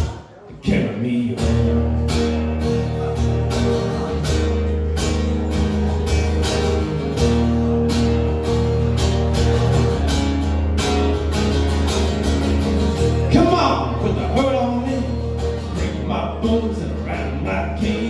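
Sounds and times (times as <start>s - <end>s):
guitar: 0.0s - 18.0s
live band playing: 1.5s - 18.0s
person singing: 13.3s - 18.0s.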